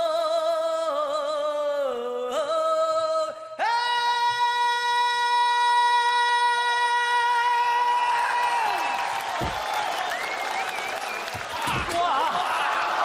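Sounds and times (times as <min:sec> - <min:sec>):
man singing with vibrato: 0:00.0 - 0:08.1.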